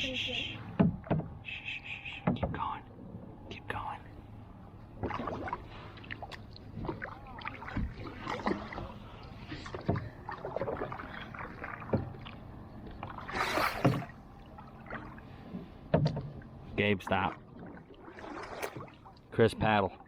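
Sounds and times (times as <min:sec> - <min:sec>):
water splashes and drips: 0:05.0 - 0:16.4, 0:17.1 - 0:19.4
kayak paddles stroking water: 0:05.0 - 0:19.4.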